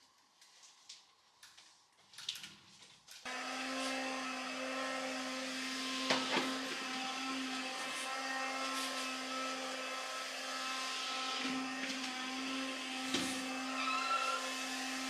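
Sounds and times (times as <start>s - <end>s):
electric appliance motor running: 3.3s - 15.0s.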